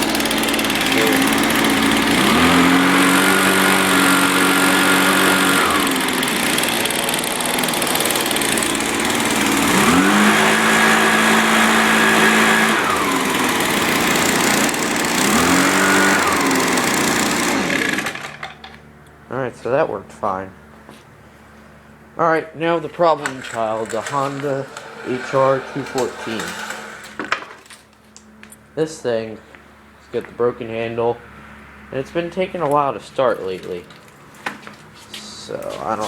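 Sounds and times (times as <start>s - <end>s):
two-stroke engine revving: 0.0s - 18.8s, 22.7s - 27.7s, 35.4s - 36.0s.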